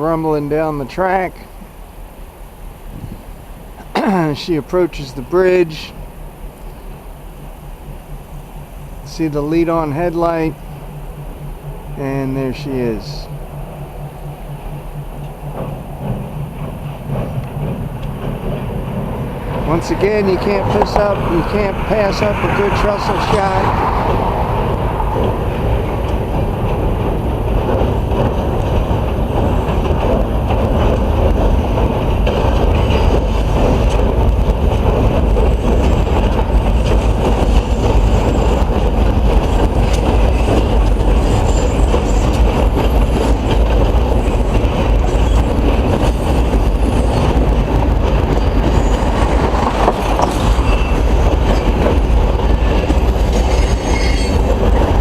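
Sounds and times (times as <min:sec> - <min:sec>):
freight train rumble: 0:00.0 - 0:55.0
wheel clatter over rails: 0:12.6 - 0:55.0
faint high wheel squeals: 0:50.6 - 0:51.6, 0:53.5 - 0:54.4.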